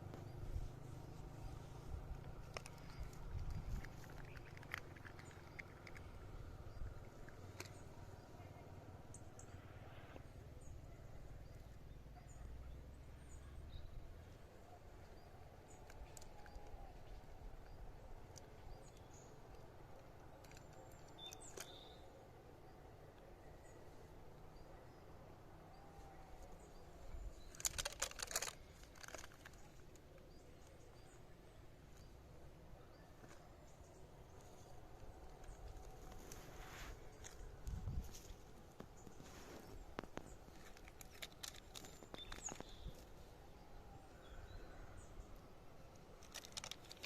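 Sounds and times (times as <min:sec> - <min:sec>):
crackling and rustling: 0:00.0 - 0:09.5, 0:14.2 - 0:22.0, 0:25.1 - 0:43.8, 0:45.0 - 0:47.0
faint bird chirps: 0:00.0 - 0:47.0
small clicks: 0:02.1 - 0:08.0, 0:15.7 - 0:21.9, 0:27.3 - 0:30.8, 0:37.1 - 0:43.2, 0:45.9 - 0:47.0.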